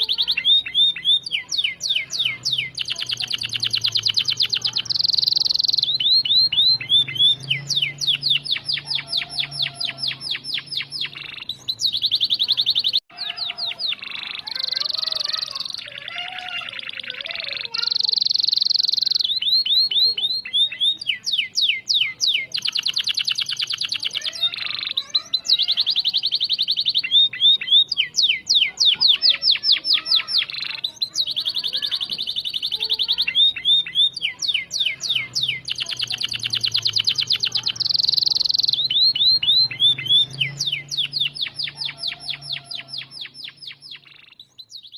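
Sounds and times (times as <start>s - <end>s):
canary singing trills: 0.0s - 44.9s.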